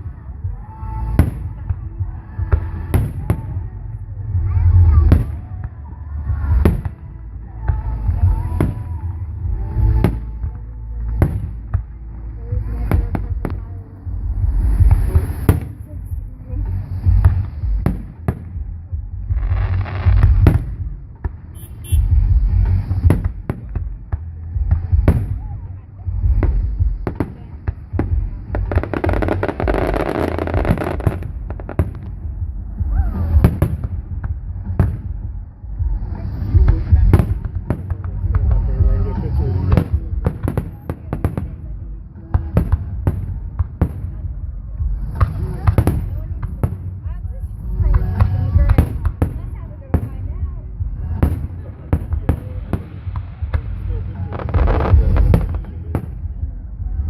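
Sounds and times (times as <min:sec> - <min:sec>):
continuous low rumble: 0:00.0 - 0:57.0
fireworks booming: 0:12.7 - 0:57.0.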